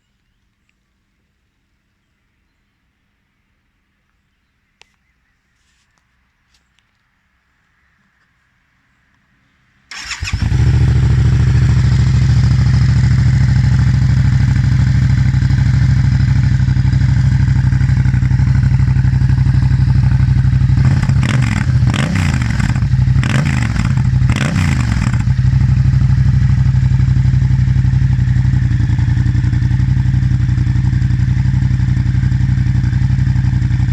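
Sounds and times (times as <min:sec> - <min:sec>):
motorcycle engine idling: 0:09.9 - 0:33.9.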